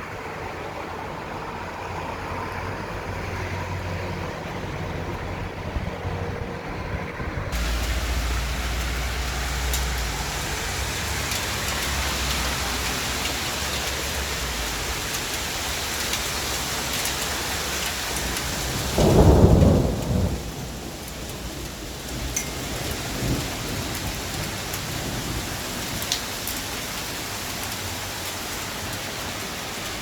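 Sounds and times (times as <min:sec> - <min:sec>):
low rumbling thunder: 0:05.4 - 0:15.1, 0:17.8 - 0:25.9
heavy rain: 0:07.5 - 0:30.0
loud thunder boom: 0:18.7 - 0:20.8.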